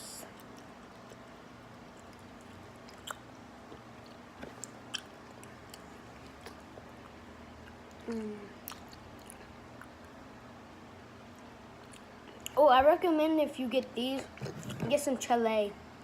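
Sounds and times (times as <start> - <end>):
chewing gummy candy: 0.3 - 10.1
person humming mm: 8.0 - 8.6.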